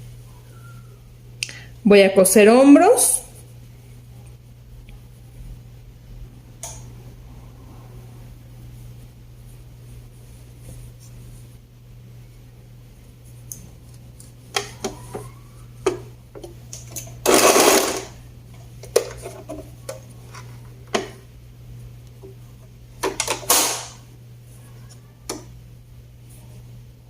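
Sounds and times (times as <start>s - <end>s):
steady low hum: 0.0s - 27.0s
overlock sewing machine stitching: 17.2s - 18.1s.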